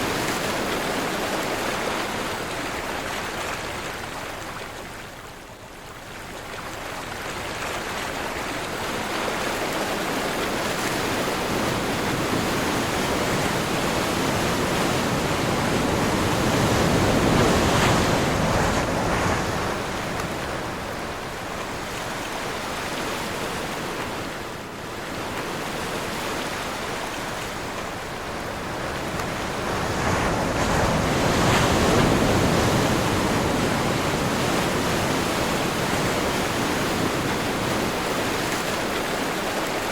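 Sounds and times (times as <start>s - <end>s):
sea waves surging: 0.0s - 4.4s, 6.8s - 39.9s
strong wind: 9.2s - 39.9s.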